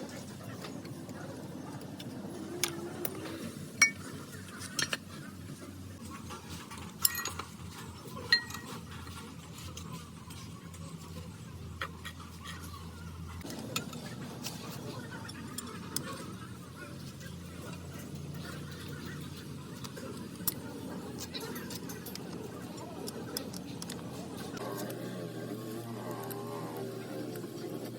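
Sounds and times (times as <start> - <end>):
metal tools clinking and clanking: 2.0 - 5.2, 6.1 - 16.4, 17.0 - 24.9.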